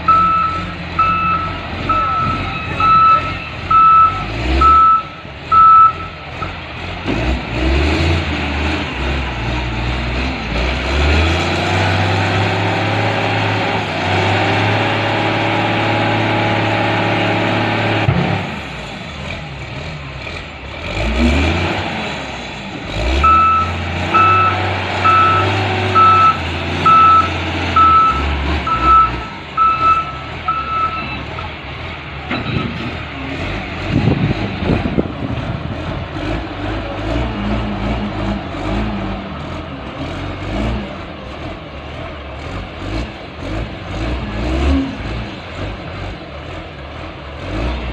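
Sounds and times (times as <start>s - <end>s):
diesel engine revving under load: 0.0s - 47.9s
back-up alarm beeping: 0.1s - 6.2s, 23.2s - 31.2s.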